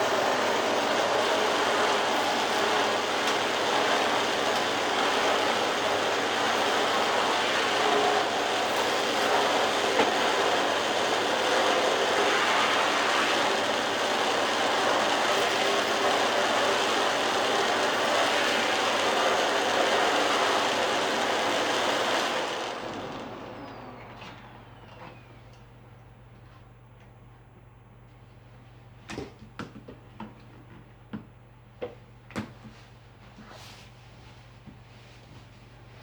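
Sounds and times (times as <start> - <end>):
vacuum cleaner running: 0.0 - 26.6.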